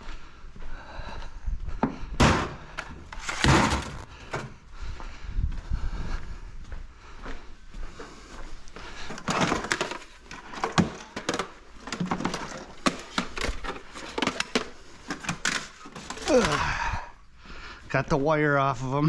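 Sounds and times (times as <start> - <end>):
clatter of scrap parts handled: 3.1 - 4.1, 9.1 - 16.5.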